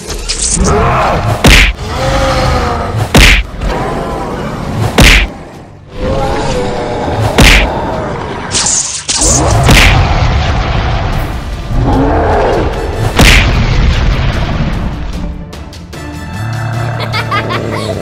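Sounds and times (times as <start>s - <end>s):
cartoon punch impacts: 1.4s - 1.8s, 3.1s - 3.5s, 5.0s - 5.3s, 7.4s - 7.7s, 9.4s - 10.2s, 13.2s - 13.8s
background music: 9.2s - 18.0s.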